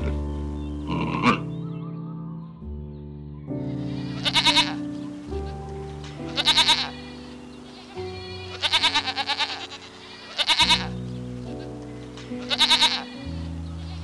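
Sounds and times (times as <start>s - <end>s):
background music of sustained chords: 0.0s - 14.0s
goat bleating: 3.8s - 4.8s, 6.3s - 11.0s, 12.4s - 14.0s.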